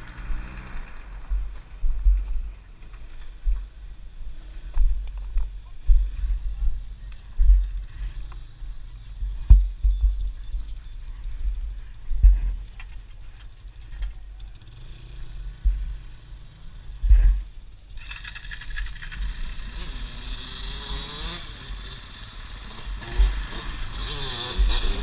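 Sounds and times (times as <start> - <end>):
motorcycle engine revving: 0.0 - 2.9, 14.2 - 25.0.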